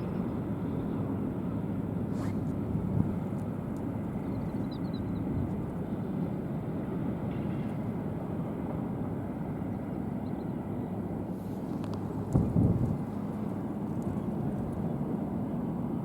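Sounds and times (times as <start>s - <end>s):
low outdoor rumble: 0.0s - 7.8s.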